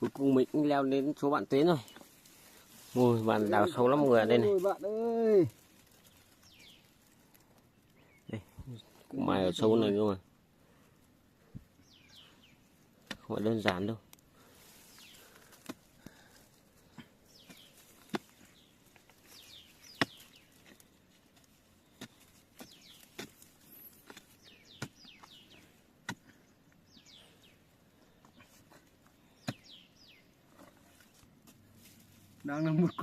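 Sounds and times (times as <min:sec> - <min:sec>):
digging bar striking earth: 0:13.0 - 0:13.9, 0:17.4 - 0:19.1, 0:19.8 - 0:26.4, 0:29.4 - 0:29.8.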